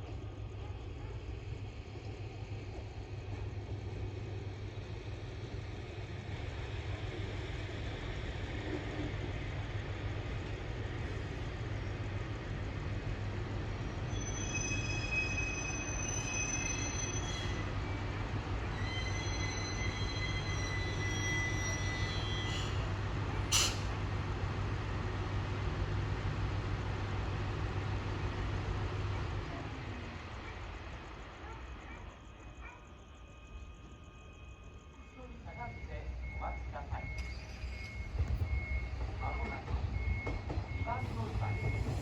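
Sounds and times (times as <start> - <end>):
train rumbling over rails: 0.0 - 42.0
train wheels squealing: 13.7 - 23.9, 34.0 - 42.0.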